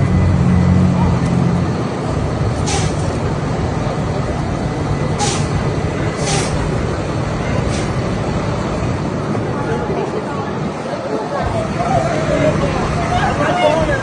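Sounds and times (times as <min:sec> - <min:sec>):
large vehicle engine running: 0:00.0 - 0:14.0
air brake hisses: 0:02.6 - 0:03.1, 0:05.2 - 0:05.6, 0:06.2 - 0:06.7.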